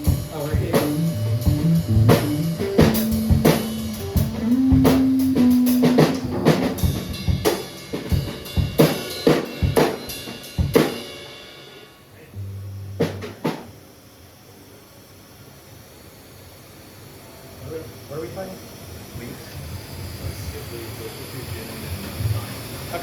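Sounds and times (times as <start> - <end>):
held bass notes: 0.0 - 7.5, 12.3 - 13.8
drum kit hits: 0.0 - 11.4, 12.4 - 13.8.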